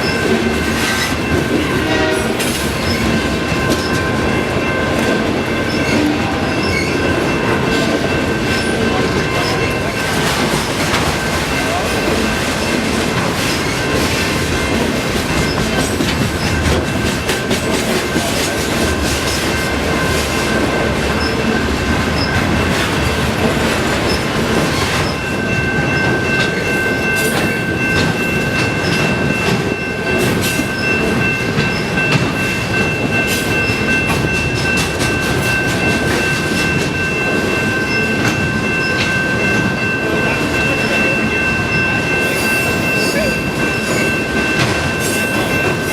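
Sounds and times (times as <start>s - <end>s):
high wheel squeal: 5.7s - 7.0s.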